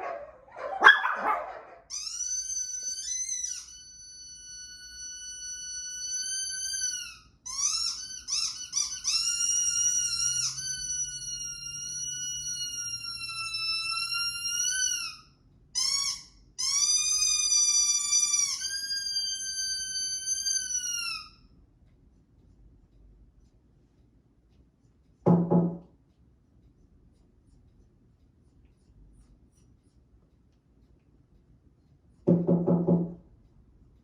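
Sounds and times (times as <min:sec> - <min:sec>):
high-pitched dog whining squeal: 0:00.0 - 0:21.4.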